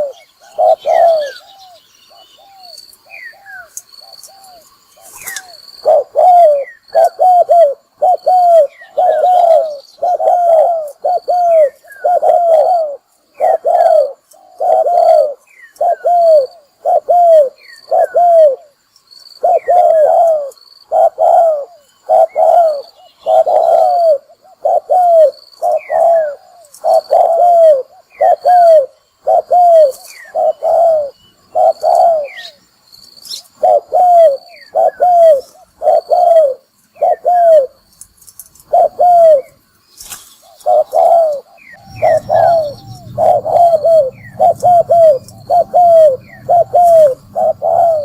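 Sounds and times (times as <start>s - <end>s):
dove cooing: 0.0s - 18.8s, 19.4s - 32.6s, 33.3s - 37.8s, 38.6s - 39.6s, 40.4s - 48.0s
high falling chirps: 39.2s - 48.0s.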